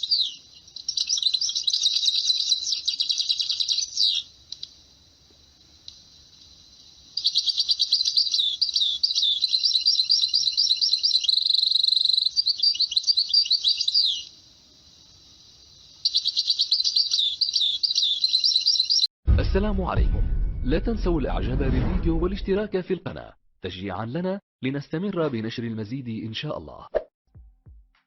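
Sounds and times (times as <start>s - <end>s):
finch twittering trills: 16.0s - 19.1s.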